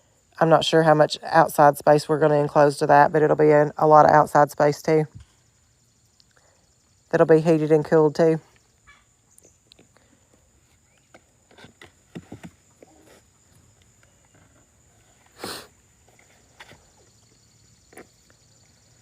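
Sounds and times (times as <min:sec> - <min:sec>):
short noisy puff: 0:15.4 - 0:15.8.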